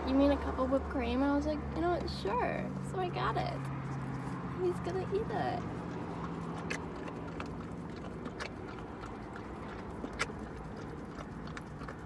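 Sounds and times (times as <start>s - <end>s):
dog lapping: 2.8s - 12.0s.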